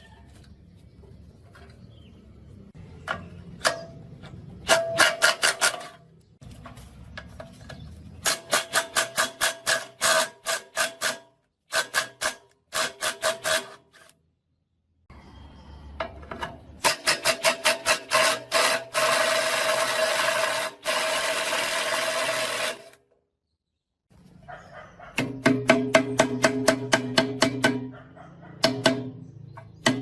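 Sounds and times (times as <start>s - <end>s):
hammer striking metal: 25.2s - 28.0s, 28.6s - 30.0s.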